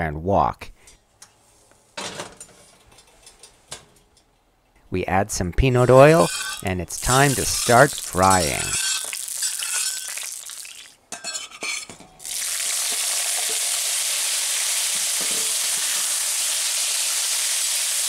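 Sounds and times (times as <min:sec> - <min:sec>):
metal spatula scraping wok: 0:05.8 - 0:11.9
beef sizzling in oil: 0:05.9 - 0:11.0, 0:11.6 - 0:18.0
oil hissing: 0:05.9 - 0:11.0.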